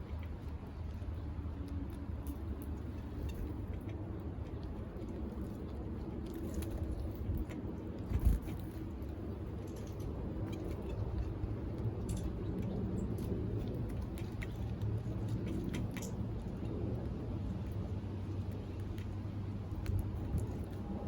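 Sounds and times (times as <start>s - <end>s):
outdoor rumble: 0.0s - 21.0s.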